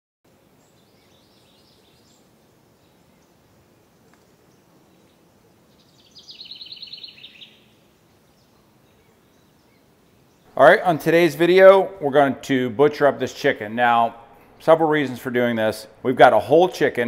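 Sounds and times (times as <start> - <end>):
faint outdoor hiss: 0.3 - 17.0
songbird trilling: 5.7 - 7.8.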